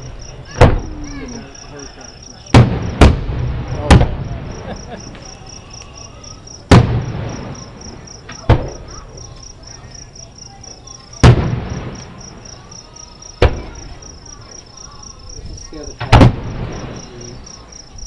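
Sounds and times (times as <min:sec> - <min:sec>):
distant firework booms: 0:00.0 - 0:01.2, 0:02.5 - 0:05.4, 0:06.6 - 0:09.2, 0:11.1 - 0:12.8, 0:13.4 - 0:14.2, 0:15.9 - 0:17.3
crickets chirping: 0:00.0 - 0:18.0.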